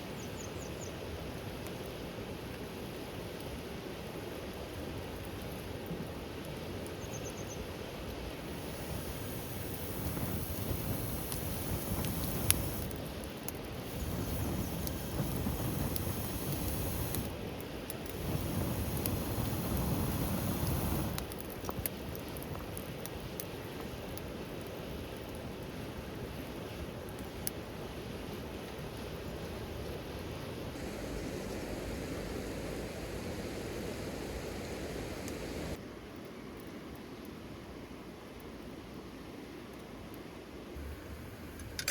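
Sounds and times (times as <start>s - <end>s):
steady rain hiss: 0.0s - 41.9s
rain rushing: 8.3s - 21.8s, 30.7s - 35.8s, 40.8s - 41.9s
sharp ticks and crackles: 8.5s - 23.3s.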